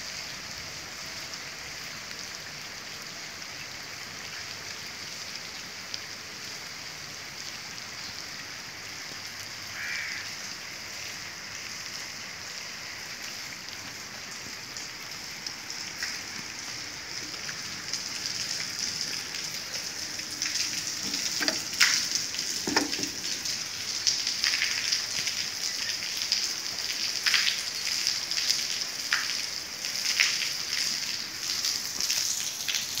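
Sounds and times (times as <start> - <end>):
heavy rain falling: 0.0 - 33.0
knocks: 22.6 - 23.2.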